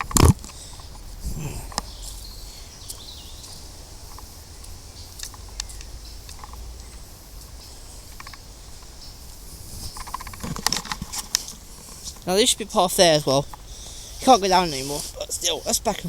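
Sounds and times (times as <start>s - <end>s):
wind rumble on microphone: 0.0s - 6.8s
footsteps on woodland path: 0.0s - 16.0s
steady outdoor hiss: 0.0s - 16.0s.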